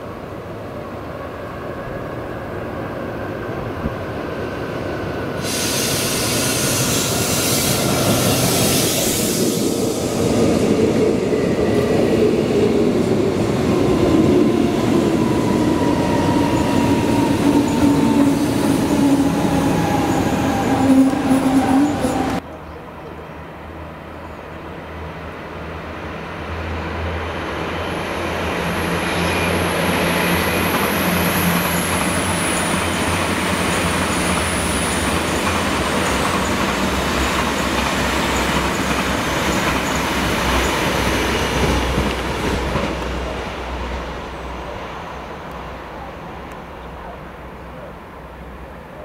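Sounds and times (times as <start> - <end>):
train wheels rumbling on rails: 3.6 - 22.4, 26.5 - 45.8
high squeal sliding down: 5.4 - 10.1.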